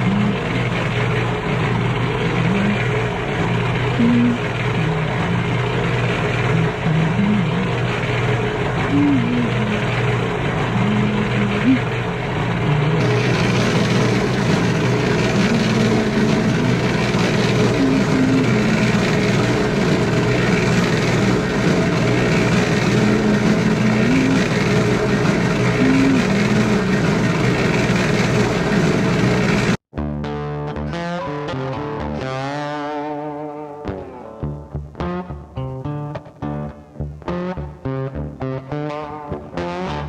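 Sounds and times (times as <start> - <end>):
engine-driven machine running: 0.0 - 29.8
guitar music: 0.0 - 40.0.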